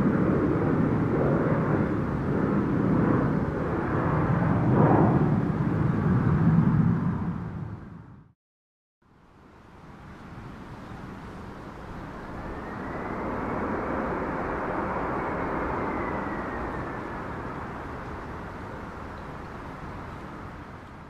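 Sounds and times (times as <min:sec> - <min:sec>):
airplane passing overhead: 0:00.0 - 0:08.3, 0:09.2 - 0:21.0
faint high whine: 0:09.6 - 0:20.6.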